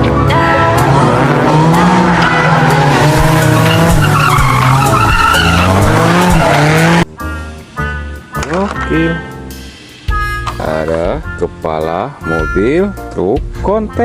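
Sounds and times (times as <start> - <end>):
car engine revving: 0.0 - 7.1
tyres screeching: 0.2 - 7.0.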